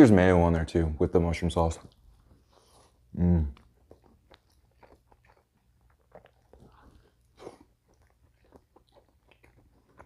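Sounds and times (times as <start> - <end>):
mouth squelch: 2.6 - 10.0
wet mouth chewing clicks: 3.5 - 10.0.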